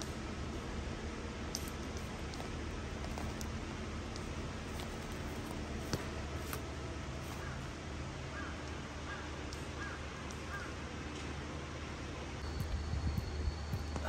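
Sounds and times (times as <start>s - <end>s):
bird calling: 7.2s - 10.8s.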